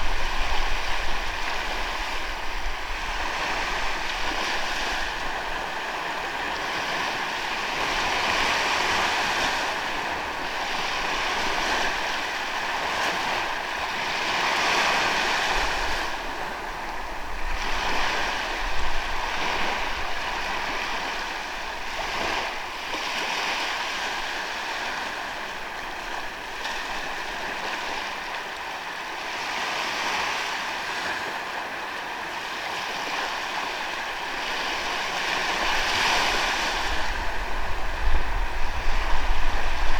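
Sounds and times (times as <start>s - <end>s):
ocean waves washing onto beach: 0.0s - 39.9s.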